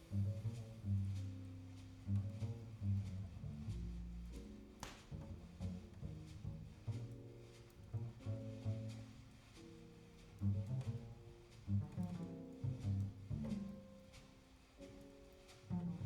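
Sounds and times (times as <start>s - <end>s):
double bass notes: 0.0s - 4.3s
faint clicks: 4.3s - 5.3s.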